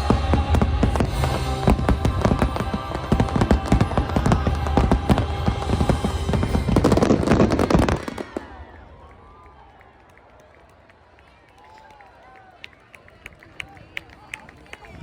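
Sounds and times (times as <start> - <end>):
loud christmas show music: 0.0 - 8.2
fireworks bangs and crackles: 0.0 - 9.5.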